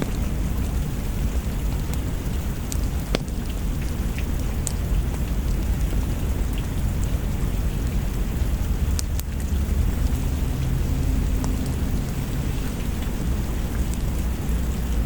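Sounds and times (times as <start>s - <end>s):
deep low rumble: 0.0s - 15.0s
heavy rain: 0.0s - 15.0s.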